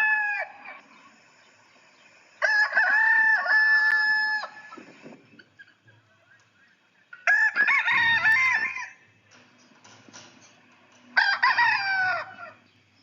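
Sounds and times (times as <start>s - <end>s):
rooster crowing: 0.0s - 1.0s, 2.4s - 4.8s, 7.2s - 9.1s, 11.2s - 12.6s.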